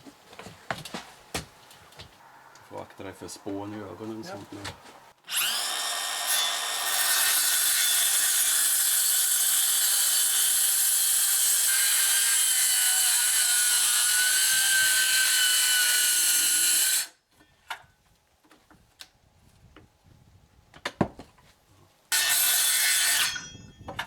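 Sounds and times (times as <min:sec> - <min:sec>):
power tool cutting wood: 0:05.3 - 0:17.1, 0:22.1 - 0:23.4.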